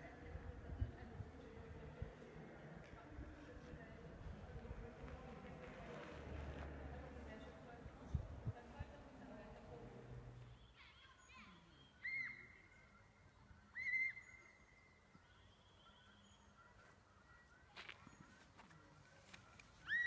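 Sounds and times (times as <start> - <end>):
bird calling: 11.6 - 13.1, 13.7 - 16.5.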